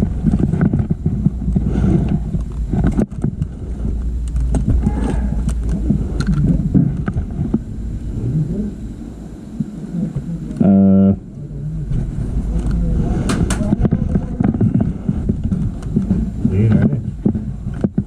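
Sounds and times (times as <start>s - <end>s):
scattered clicks and knocks: 0.0s - 7.7s, 11.9s - 18.0s
low buzzing tone: 0.0s - 18.0s
wind rumble on microphone: 0.0s - 18.0s.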